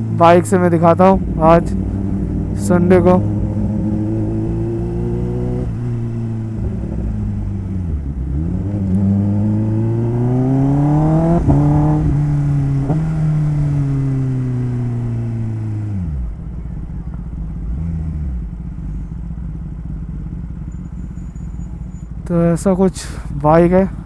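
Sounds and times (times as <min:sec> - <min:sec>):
motorcycle engine pulling away: 0:01.2 - 0:22.3.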